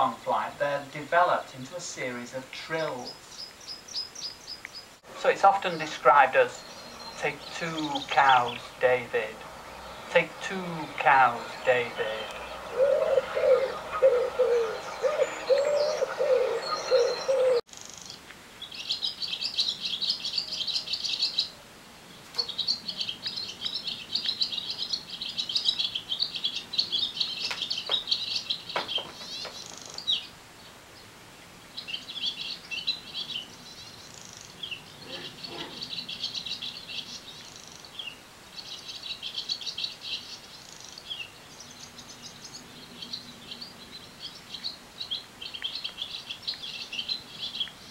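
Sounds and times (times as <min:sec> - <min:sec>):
songbird trilling: 0:02.7 - 0:21.6
wood pigeon cooing: 0:12.3 - 0:17.6, 0:35.0 - 0:35.9.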